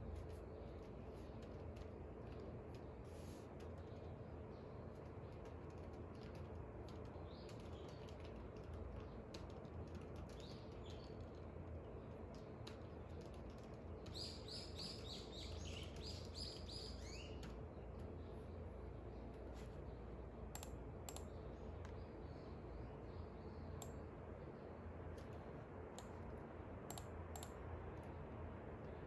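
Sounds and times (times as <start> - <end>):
steady low background hum: 0.0 - 29.0
faint scattered clicks: 0.2 - 16.7, 17.3 - 18.1, 20.5 - 22.0, 23.8 - 24.1, 25.1 - 28.2
small birds chirping: 6.9 - 24.7.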